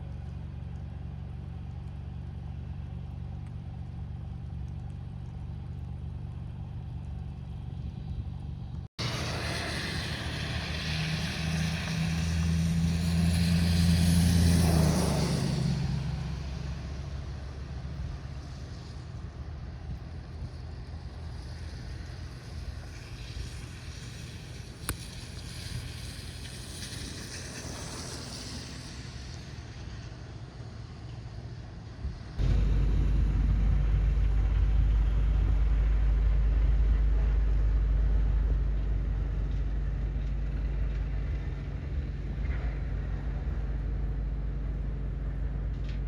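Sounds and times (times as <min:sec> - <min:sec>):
steady low rumble: 0:00.0 - 0:46.0
vehicle passing by: 0:09.0 - 0:45.5.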